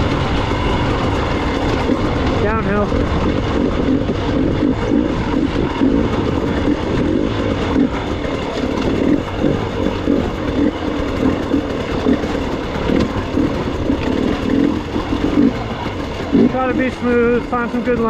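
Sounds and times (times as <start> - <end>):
two-stroke dirt bike engine: 0.0 - 18.0.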